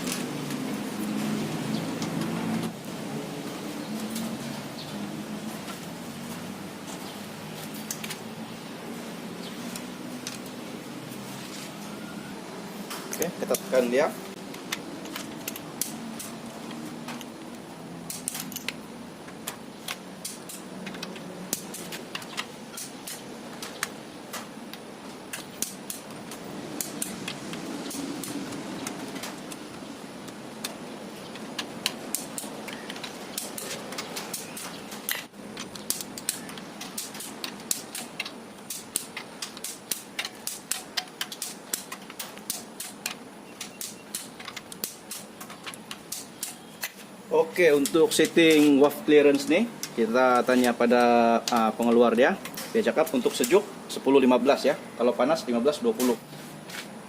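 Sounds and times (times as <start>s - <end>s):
metallic clicking of hand tools: 14.5s - 17.4s, 18.1s - 47.0s.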